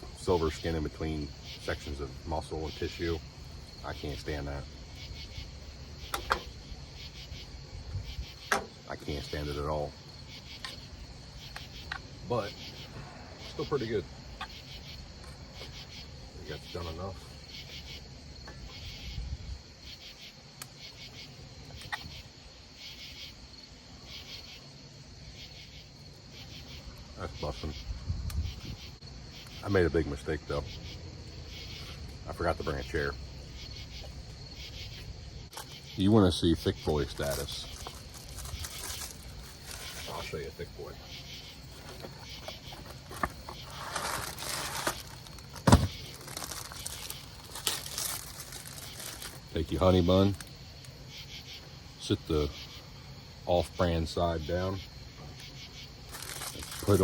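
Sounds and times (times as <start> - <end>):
crickets chirping: 0.0 - 57.0
plastic wrapper crinkling: 37.1 - 40.2, 41.7 - 49.5, 56.1 - 57.0
sharp thump: 45.6 - 46.0.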